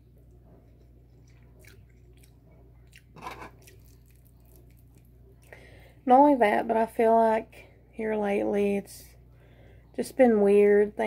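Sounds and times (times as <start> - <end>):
steady low hum: 0.0 - 11.0
chewing noodles: 0.6 - 5.6.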